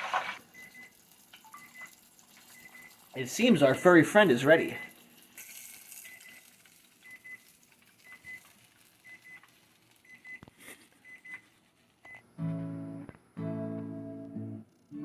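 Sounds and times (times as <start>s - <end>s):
kitchen timer beeping: 0.5s - 5.0s, 5.9s - 10.4s.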